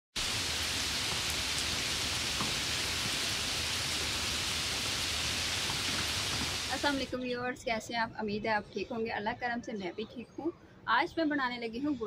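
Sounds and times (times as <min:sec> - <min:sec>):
steady rain on bricks: 0:00.2 - 0:07.2.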